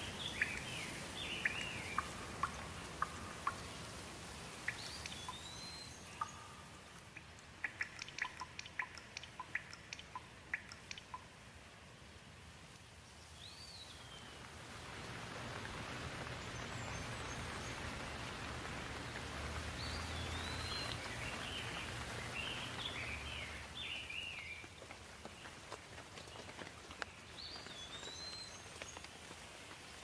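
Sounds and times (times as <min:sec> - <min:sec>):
birds chirping: 0:00.0 - 0:11.2, 0:13.2 - 0:29.1
rain falling: 0:00.0 - 0:30.0.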